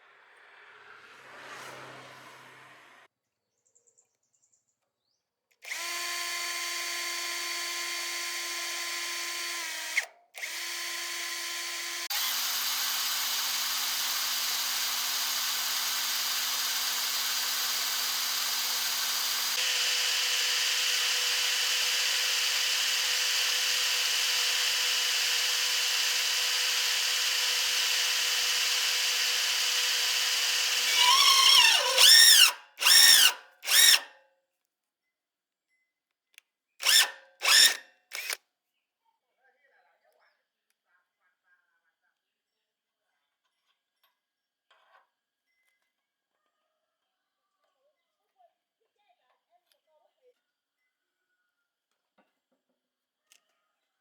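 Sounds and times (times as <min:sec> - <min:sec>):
power tool motor running: 0:05.6 - 0:34.1, 0:36.8 - 0:38.4.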